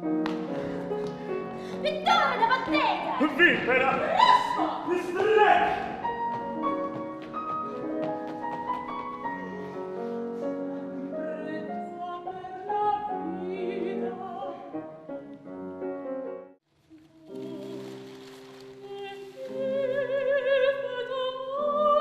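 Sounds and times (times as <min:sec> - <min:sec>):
piano accompaniment: 0:00.0 - 0:22.0
opera singing voices: 0:01.7 - 0:06.3, 0:10.8 - 0:15.3, 0:18.8 - 0:22.0.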